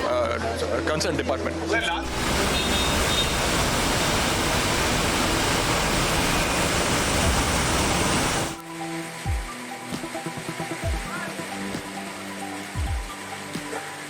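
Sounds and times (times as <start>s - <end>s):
heavy rain pouring: 2.0s - 8.6s
music with held notes: 8.6s - 14.0s.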